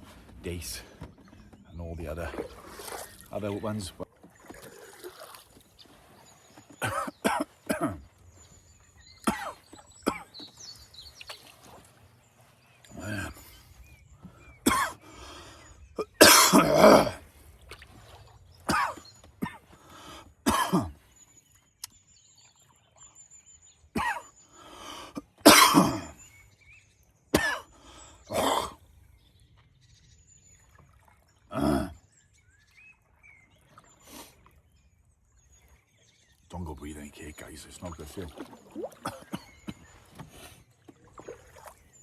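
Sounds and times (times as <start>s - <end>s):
man clearing throat: 6.8s - 8.0s, 9.2s - 10.3s, 12.9s - 13.5s, 14.6s - 15.0s, 16.0s - 17.2s, 18.7s - 19.7s, 20.5s - 21.0s, 24.0s - 24.3s, 25.4s - 26.2s, 27.4s - 27.7s, 28.3s - 28.8s, 31.5s - 32.0s, 39.0s - 39.6s
man coughing: 6.8s - 8.0s, 9.2s - 10.3s, 14.6s - 15.0s, 16.0s - 17.2s, 18.7s - 19.7s, 20.4s - 21.0s, 24.0s - 24.3s, 25.2s - 26.2s, 27.4s - 27.7s, 28.3s - 28.8s, 39.0s - 39.6s.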